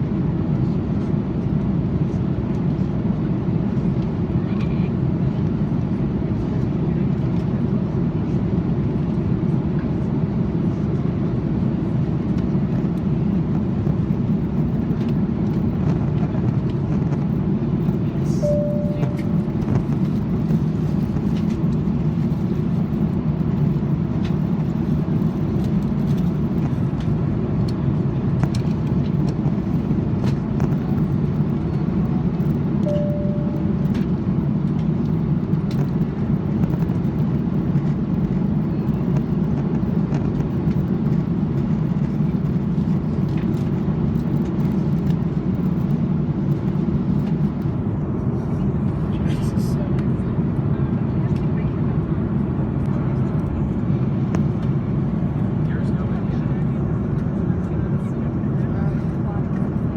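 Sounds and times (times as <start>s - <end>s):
airliner cabin engine roar: 0.0s - 59.9s
short single-note tones: 18.4s - 19.6s, 32.9s - 33.9s.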